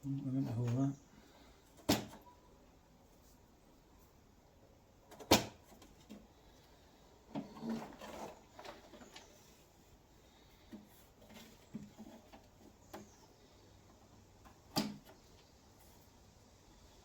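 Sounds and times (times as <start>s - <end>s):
rustling: 5.6s - 16.3s.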